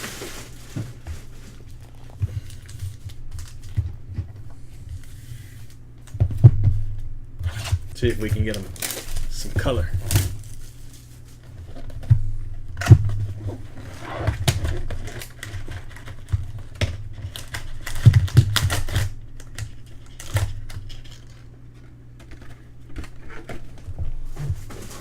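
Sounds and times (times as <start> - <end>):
card packs crinkling and clicking: 0.0 - 6.2, 7.5 - 12.1, 12.7 - 25.0
steady low hum: 0.0 - 25.0.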